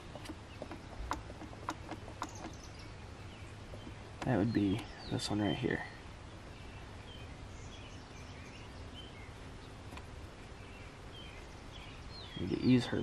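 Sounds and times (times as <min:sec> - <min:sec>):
faint bird chirps: 0:00.0 - 0:09.8, 0:10.5 - 0:13.0
low steady rumble: 0:00.0 - 0:13.0.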